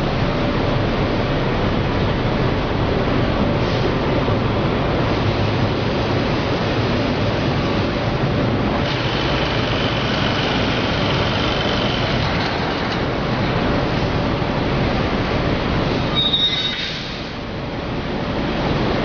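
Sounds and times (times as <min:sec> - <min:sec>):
industrial machinery running: 0:00.0 - 0:16.2
faint high squeal: 0:16.2 - 0:17.1.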